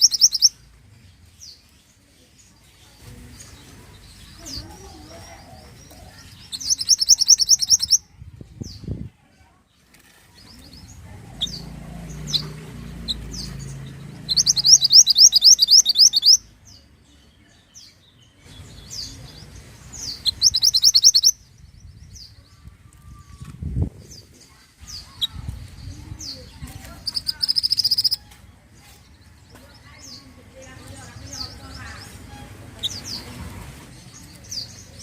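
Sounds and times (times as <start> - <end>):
bird single chirps: 0.0 - 0.5, 6.5 - 8.0, 14.3 - 16.4, 20.1 - 21.4, 27.0 - 28.2
songbird high trills: 0.0 - 0.5, 6.6 - 8.0, 14.3 - 16.4, 20.1 - 21.4.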